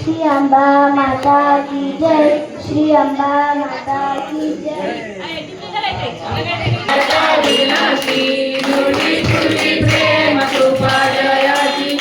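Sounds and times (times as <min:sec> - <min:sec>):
drum beating: 0:06.0 - 0:12.0
group singing devotional song: 0:06.9 - 0:12.0
jingling hand percussion: 0:06.9 - 0:12.0.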